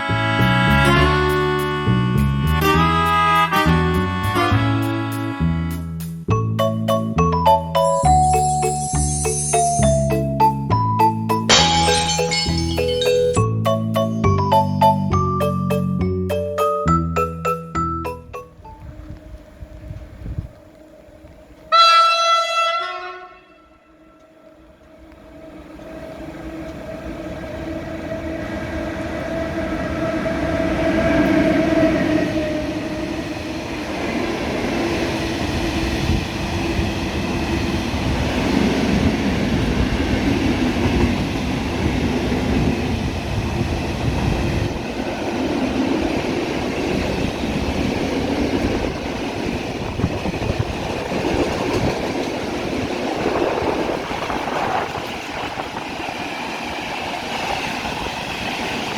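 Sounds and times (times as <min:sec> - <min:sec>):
rumble and clatter of wagons: 0:38.0 - 0:58.9.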